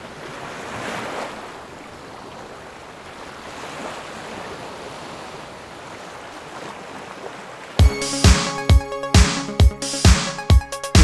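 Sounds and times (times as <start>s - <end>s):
sea waves breaking: 0.0s - 9.5s.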